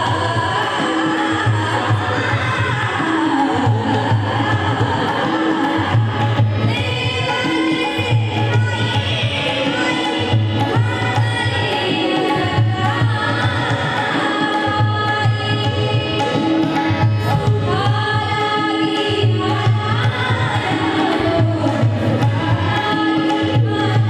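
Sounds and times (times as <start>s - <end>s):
woman singing: 0.0s - 24.0s.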